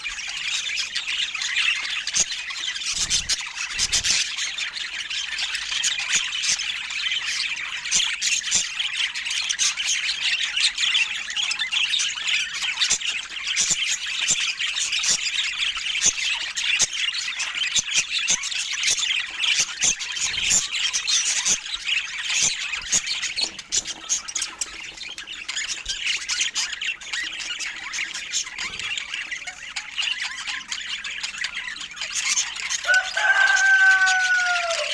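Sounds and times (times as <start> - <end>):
budgerigars chattering: 0.0 - 34.9
loud clear bird call: 32.8 - 34.9.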